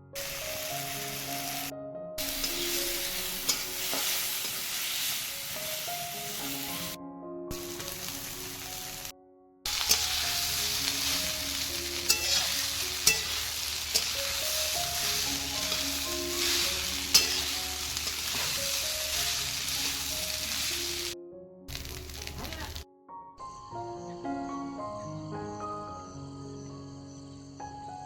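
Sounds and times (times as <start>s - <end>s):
food sizzling in hot oil: 0.2s - 9.1s, 9.7s - 22.8s
utensil clinking against pan: 12.1s - 14.4s, 17.0s - 18.6s.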